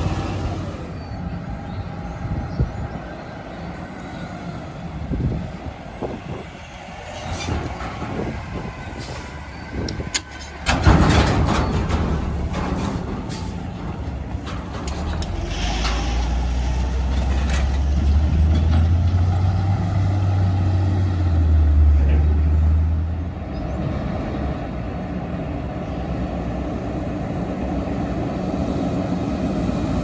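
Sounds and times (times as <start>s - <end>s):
garbage truck engine running: 0.0s - 1.8s, 5.0s - 21.6s.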